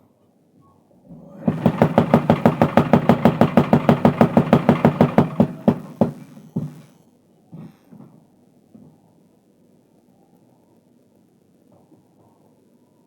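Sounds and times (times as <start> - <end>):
low motor hum: 1.0 - 7.0
power hammer blows on steel: 1.1 - 7.0.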